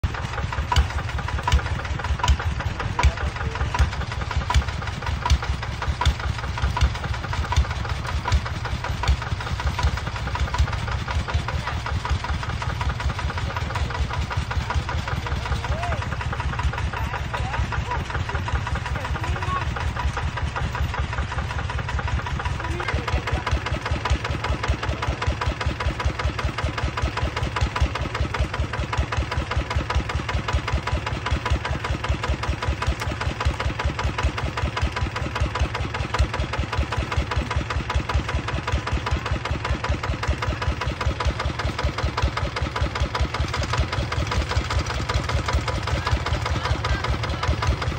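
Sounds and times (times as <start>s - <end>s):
diesel engine idling: 0.0s - 47.9s.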